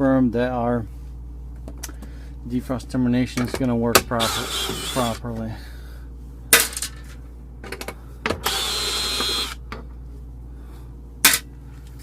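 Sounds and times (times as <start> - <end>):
low machine hum: 0.0 - 12.0
power drill whining: 4.2 - 5.2, 8.4 - 9.6.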